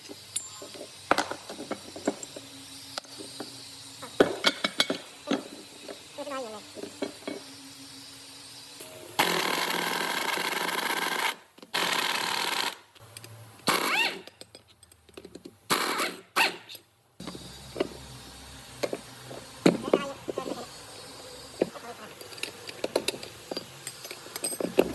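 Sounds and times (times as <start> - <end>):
power tool running in bursts: 5.0 - 12.8.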